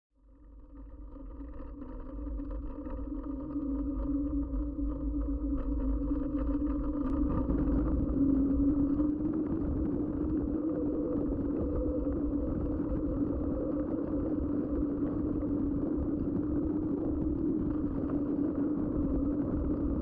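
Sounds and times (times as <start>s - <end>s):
wind rumble on microphone: 0.2s - 20.0s.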